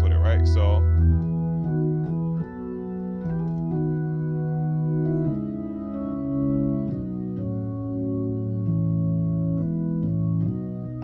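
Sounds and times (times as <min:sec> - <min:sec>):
organ playing sustained chords: 0:00.0 - 0:11.0.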